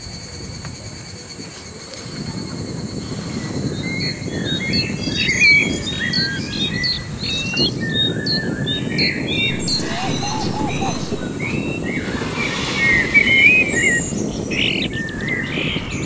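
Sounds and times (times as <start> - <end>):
birds chirping and whistling: 3.0 - 16.0
steady low rumble: 9.3 - 16.0.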